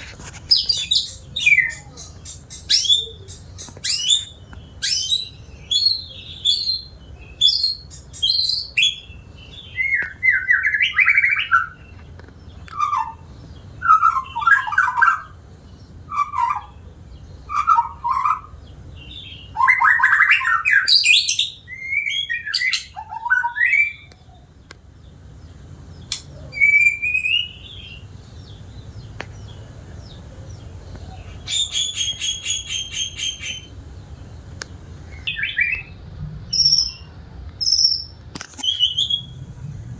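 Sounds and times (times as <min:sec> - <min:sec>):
bird singing whistled phrases: 0:00.8 - 0:09.1, 0:13.8 - 0:15.3, 0:17.5 - 0:24.1, 0:26.4 - 0:28.0, 0:35.2 - 0:39.5.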